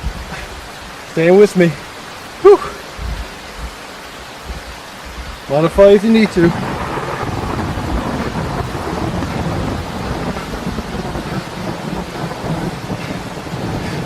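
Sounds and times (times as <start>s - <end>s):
heavy rain: 0.0s - 14.0s
thunder rumbling: 2.8s - 14.0s.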